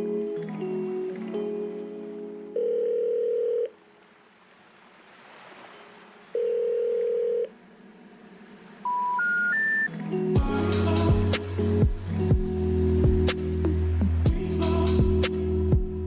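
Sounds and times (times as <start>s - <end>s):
long telephone beeps: 2.6s - 3.7s, 6.4s - 7.5s, 8.9s - 9.9s
rising three-tone telephone signal: 6.4s - 7.5s, 8.8s - 9.9s.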